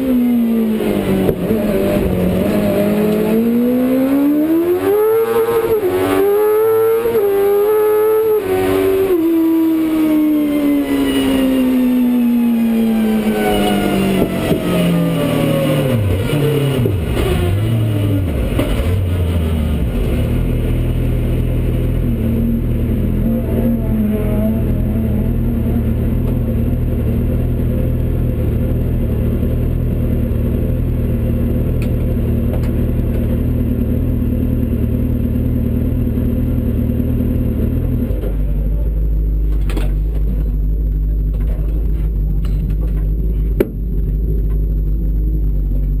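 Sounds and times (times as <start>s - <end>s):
car engine idling: 12.4s - 46.0s.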